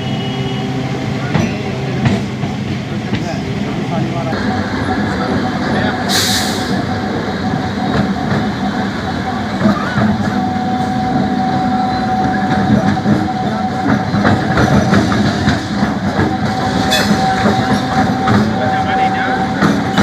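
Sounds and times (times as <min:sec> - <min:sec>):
electric train running on track: 0:00.0 - 0:20.0
wheel clatter over rails: 0:12.2 - 0:20.0.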